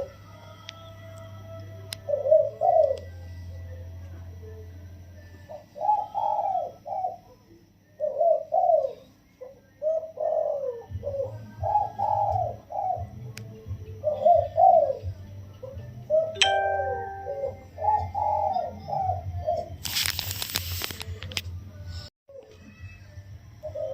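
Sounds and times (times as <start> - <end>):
dove cooing: 2.0 - 3.1, 5.5 - 7.4, 8.0 - 13.2, 13.9 - 16.4, 17.8 - 19.8, 23.6 - 23.9.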